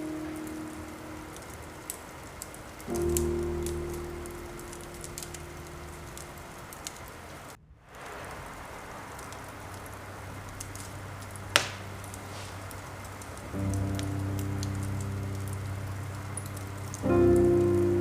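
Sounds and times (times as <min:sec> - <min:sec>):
log fire crackling: 0:00.0 - 0:18.0
steady rain: 0:00.0 - 0:18.0
sharp pop from fire: 0:11.5 - 0:12.5.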